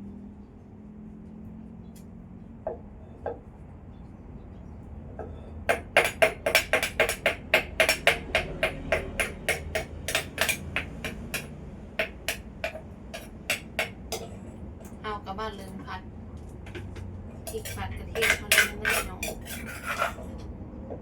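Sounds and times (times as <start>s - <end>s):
rapid chopping strikes: 5.7s - 14.0s
scattered taps: 5.7s - 14.3s.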